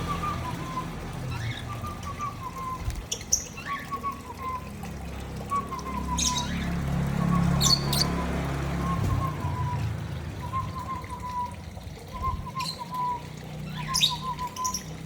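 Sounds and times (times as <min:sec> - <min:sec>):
lovebirds chirping and squawking: 0:00.0 - 0:04.6, 0:05.8 - 0:09.9, 0:12.1 - 0:15.0.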